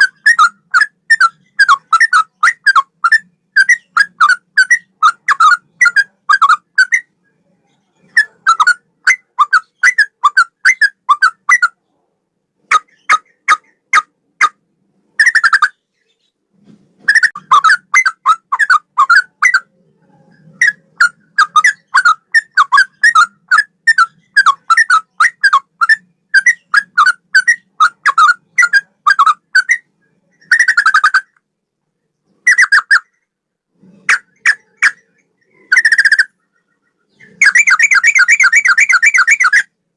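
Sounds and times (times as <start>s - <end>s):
bulbul singing whistled notes: 37.1s - 39.7s.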